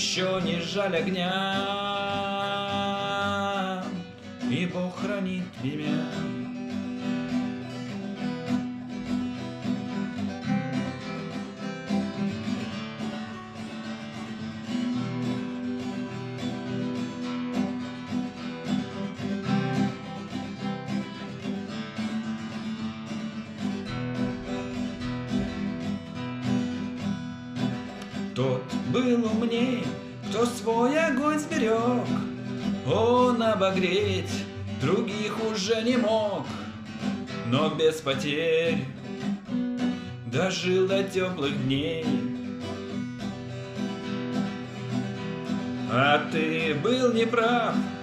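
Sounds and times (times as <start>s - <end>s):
acoustic guitar strumming: 0.0s - 48.0s.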